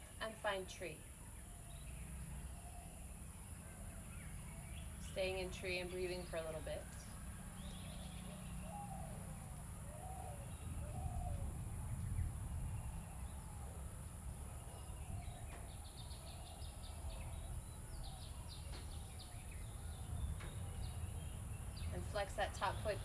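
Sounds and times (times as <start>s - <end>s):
birds chirping trills: 0.0s - 23.0s
steady low rumble: 4.0s - 23.0s
birds cooing: 7.6s - 12.3s.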